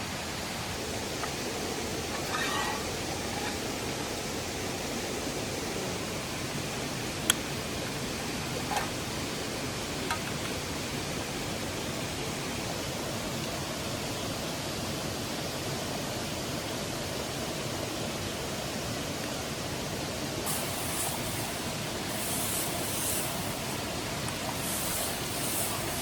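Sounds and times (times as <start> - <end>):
high hissing: 1.8 - 3.7, 20.4 - 26.0
steady rushing noise: 20.2 - 26.0.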